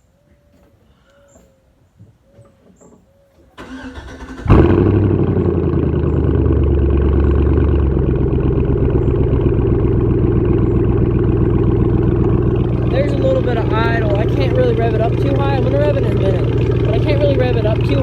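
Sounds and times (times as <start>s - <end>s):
starter motor cranking: 3.6s - 5.0s, 11.1s - 18.0s
truck engine idling: 3.6s - 18.0s.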